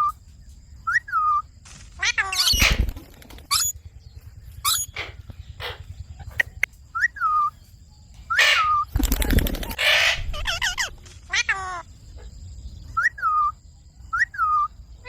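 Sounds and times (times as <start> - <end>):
parakeet chirps and squawks: 2.0 - 3.8, 4.6 - 7.6, 8.3 - 8.9, 9.6 - 12.3.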